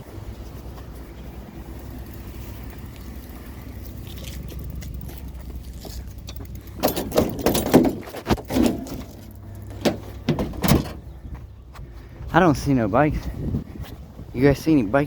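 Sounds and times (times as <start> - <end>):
vehicle engine and road drone: 0.0 - 15.0
clanks and rattles: 2.0 - 11.5.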